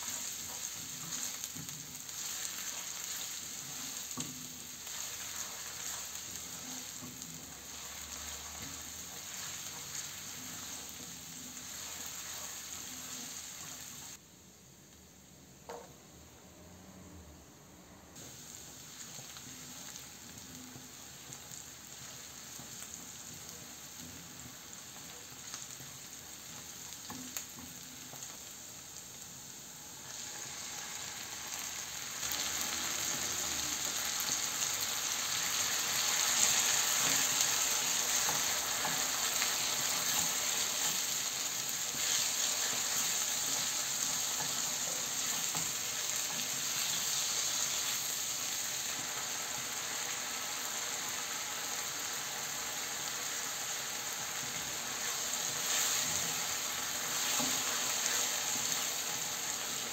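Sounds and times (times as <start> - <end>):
spatula stirring in a pan: 0.0 - 14.2, 30.0 - 59.9
vegetables sizzling in a frying pan: 0.0 - 16.3, 18.2 - 59.9.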